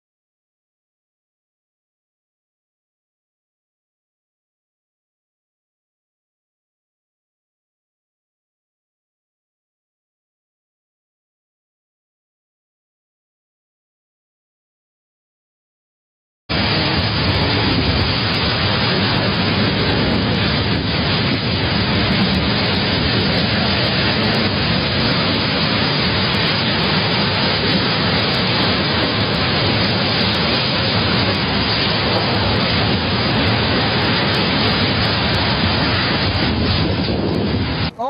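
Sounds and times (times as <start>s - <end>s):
driving rain: 16.5s - 38.0s
storm wind roaring: 16.5s - 38.0s.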